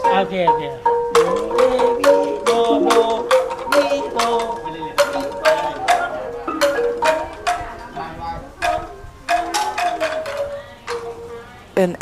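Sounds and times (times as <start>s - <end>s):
percussion ensemble playing: 0.0s - 12.0s
xylophone notes: 0.0s - 12.0s.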